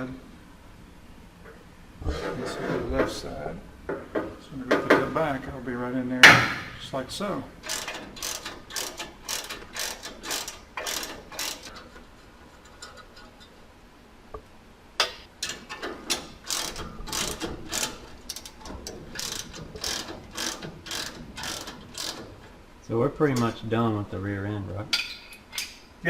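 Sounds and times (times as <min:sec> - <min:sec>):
ratchet wrench clicking: 0:07.6 - 0:11.8, 0:15.4 - 0:22.5.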